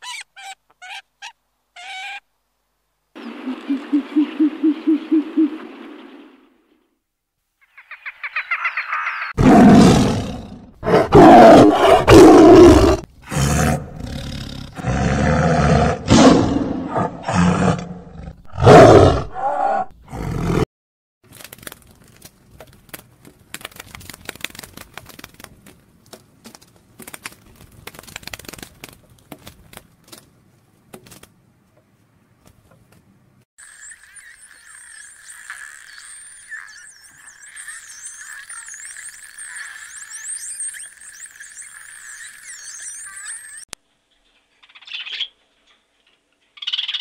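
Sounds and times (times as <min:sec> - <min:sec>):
big cat growling and roaring: 0:09.4 - 0:20.6.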